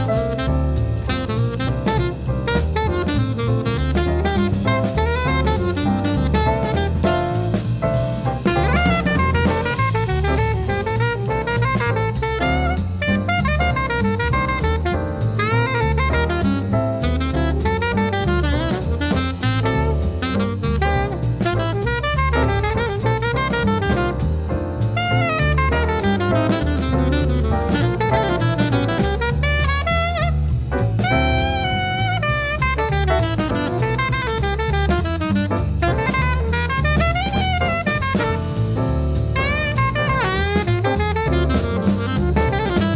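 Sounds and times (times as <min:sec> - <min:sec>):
drum kit: 0:00.0 - 0:42.9
saxophone melody: 0:00.0 - 0:42.9
walking bass line: 0:00.0 - 0:42.9.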